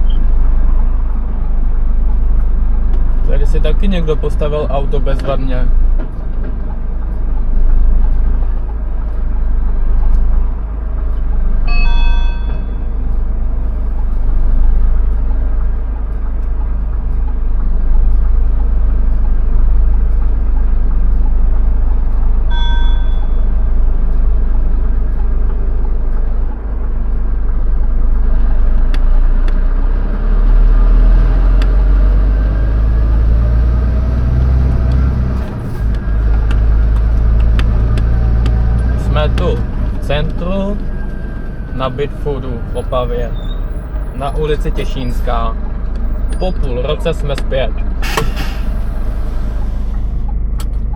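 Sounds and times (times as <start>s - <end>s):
road noise: 0.0s - 50.9s
truck engine rumble: 0.0s - 50.9s
short electronic beeps: 11.7s - 13.1s, 22.5s - 23.6s.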